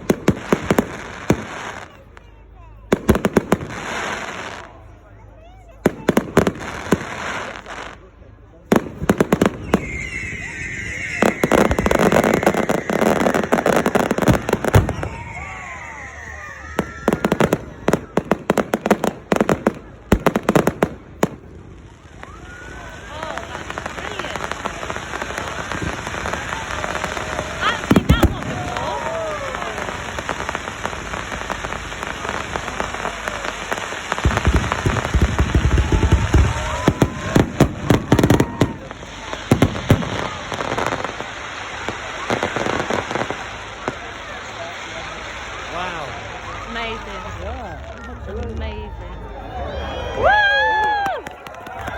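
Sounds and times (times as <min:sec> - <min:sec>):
fireworks bangs and crackling: 0:00.0 - 0:51.9
high-pitched whistle: 0:09.6 - 0:13.6
deep firework bang: 0:34.2 - 0:43.2.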